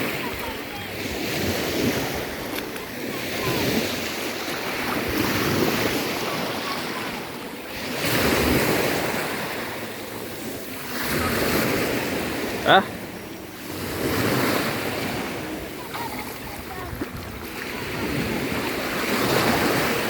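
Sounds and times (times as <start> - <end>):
surf washing onto beach: 0.0 - 20.0
wind buffeting microphone: 14.8 - 20.0.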